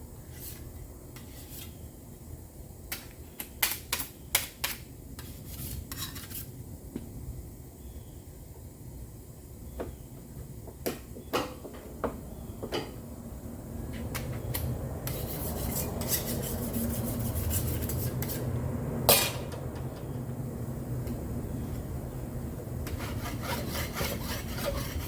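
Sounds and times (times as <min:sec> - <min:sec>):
rasping rubbing on panel: 0:15.1 - 0:18.5, 0:22.9 - 0:25.0
loud metallic clank: 0:19.1 - 0:19.6.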